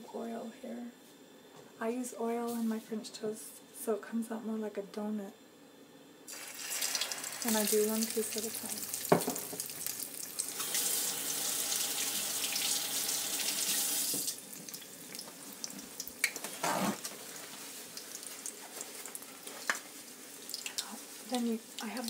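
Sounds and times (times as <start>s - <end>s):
bread sizzling in oil: 6.3s - 22.0s.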